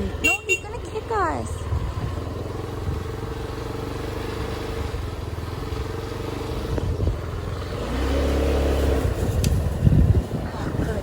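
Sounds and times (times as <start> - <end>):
scooter engine revving: 0.0 - 11.0.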